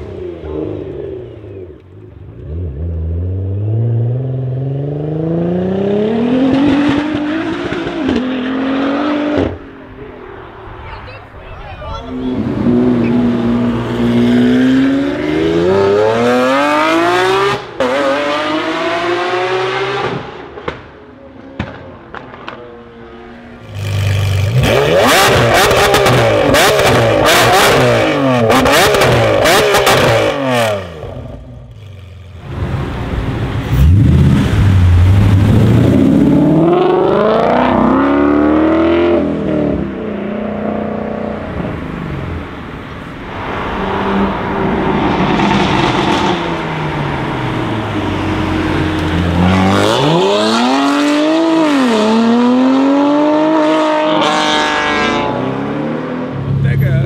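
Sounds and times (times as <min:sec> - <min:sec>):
another car accelerating away: 0:02.3 - 0:09.7, 0:12.3 - 0:20.8, 0:23.3 - 0:56.8
sports car engine accelerating: 0:12.1 - 0:20.8, 0:21.6 - 0:57.0.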